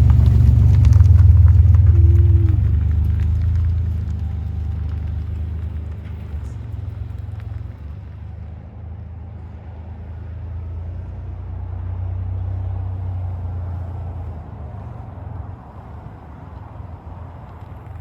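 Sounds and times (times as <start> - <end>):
truck engine running: 0.0 - 8.7.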